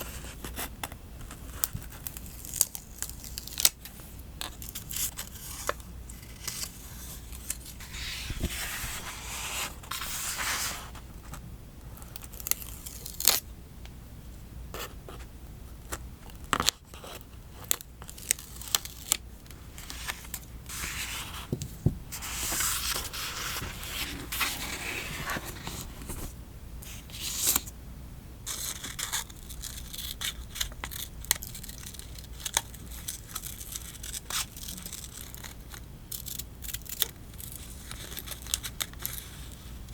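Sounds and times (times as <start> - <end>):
paper rustling: 4.4 - 11.4, 18.1 - 26.3.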